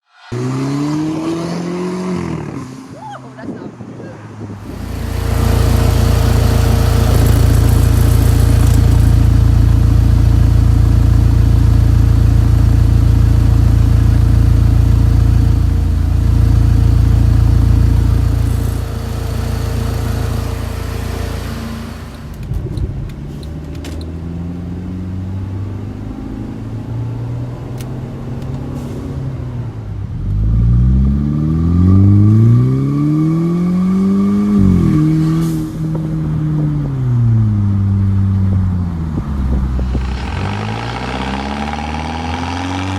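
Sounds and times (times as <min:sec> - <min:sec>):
engine revving: 0:00.0 - 0:03.0, 0:04.6 - 0:22.4, 0:39.6 - 0:42.9
car engine idling loudly: 0:04.6 - 0:22.4, 0:39.8 - 0:42.9.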